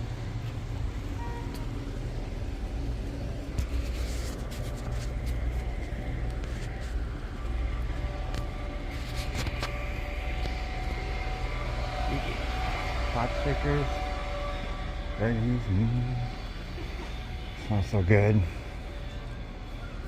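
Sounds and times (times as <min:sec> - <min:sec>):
steady low street rumble: 0:00.0 - 0:20.0.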